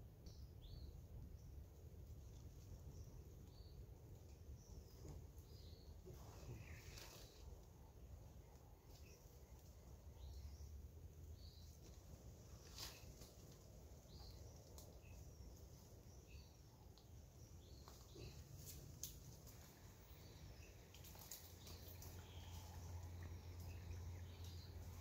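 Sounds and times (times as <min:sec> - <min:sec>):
low background rumble: 0:00.0 - 0:25.0
faint bird chirps: 0:02.9 - 0:07.6, 0:12.5 - 0:25.0.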